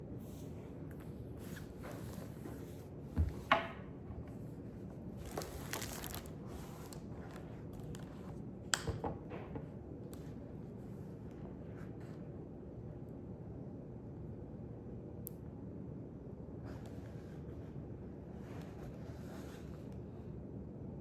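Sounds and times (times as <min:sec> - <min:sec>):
paper rustle: 0:05.2 - 0:08.3.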